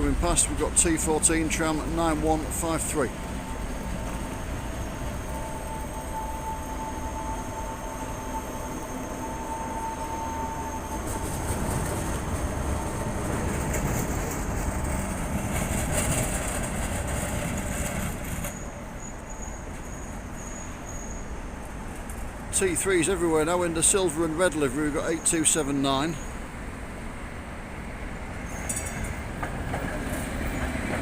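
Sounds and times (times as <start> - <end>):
tram passing on track: 0.0 - 31.0
steady high tone: 1.8 - 13.2.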